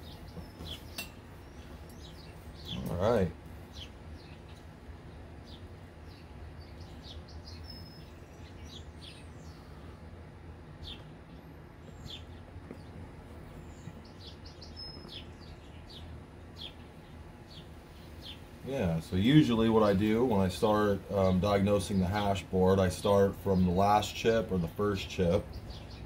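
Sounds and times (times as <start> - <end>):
songbird chirping: 0.0 - 26.0
whistled bird notes: 6.1 - 9.8.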